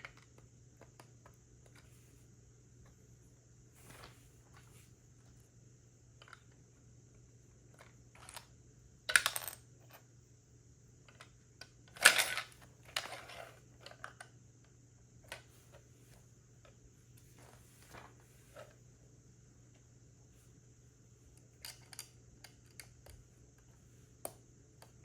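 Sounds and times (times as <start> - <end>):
plastic bricks clicking and clattering: 11.9 - 14.2.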